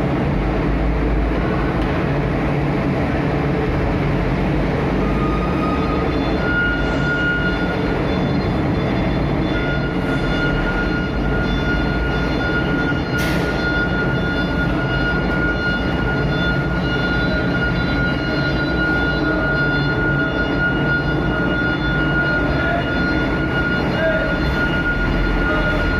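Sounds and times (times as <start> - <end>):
high whine: 0.0 - 25.9
truck engine rumbling: 0.0 - 25.9.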